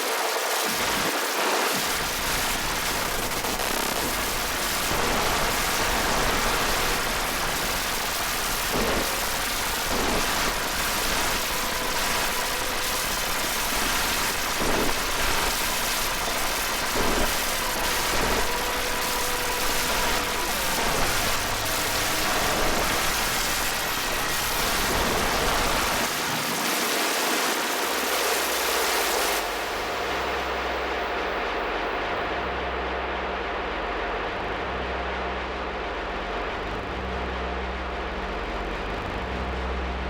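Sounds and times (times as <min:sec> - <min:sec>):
rain-like hiss: 0:00.0 - 0:31.2
low rumble: 0:29.4 - 0:40.0.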